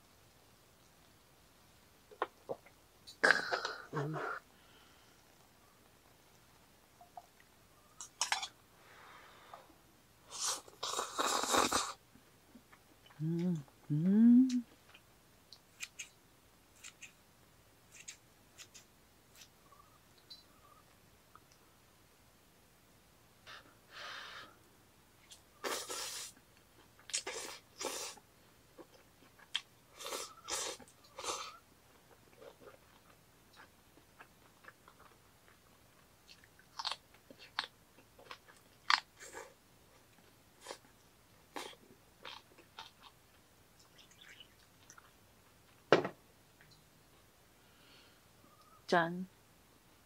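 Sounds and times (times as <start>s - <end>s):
person chewing noodles: 28.8s - 39.6s, 41.5s - 43.2s.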